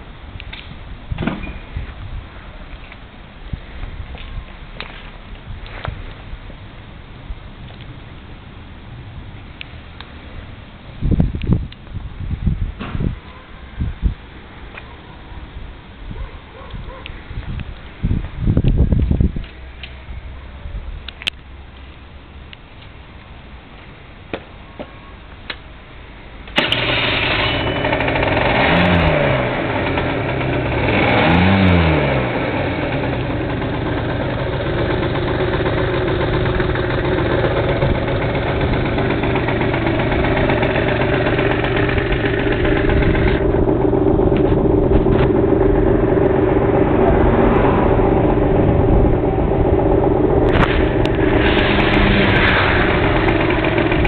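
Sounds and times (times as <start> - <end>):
scooter engine revving and idling: 26.6 - 54.0.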